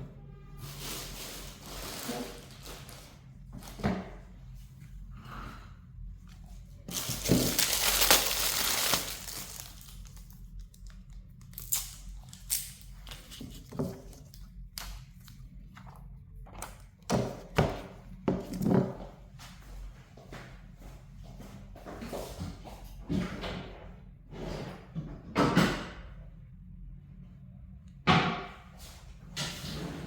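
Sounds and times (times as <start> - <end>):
plastic crinkling: 0.6 - 3.7, 6.8 - 14.2.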